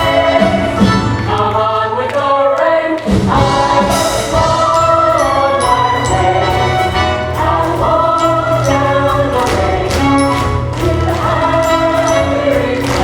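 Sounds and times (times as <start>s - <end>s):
chorus singing with instruments: 0.0s - 13.0s.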